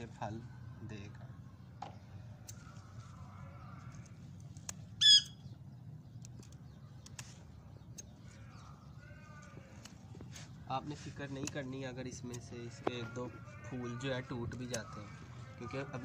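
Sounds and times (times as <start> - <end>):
scissors snipping: 4.4 - 4.9, 6.2 - 8.2, 9.7 - 10.0, 11.3 - 12.6
bird squawk: 5.0 - 5.5.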